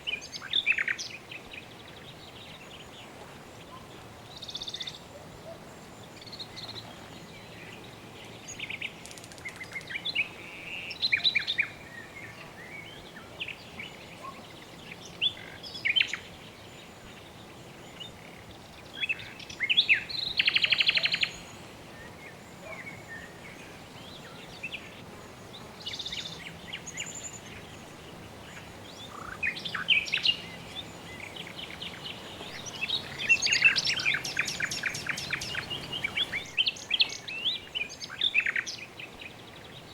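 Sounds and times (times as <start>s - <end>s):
birds calling and chirping: 0.0s - 39.9s
bird trills: 32.5s - 37.4s.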